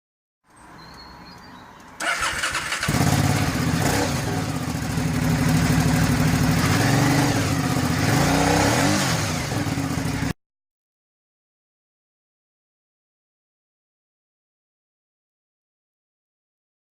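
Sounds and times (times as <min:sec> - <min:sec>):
motorcycle engine idling and revving: 0:02.0 - 0:10.4.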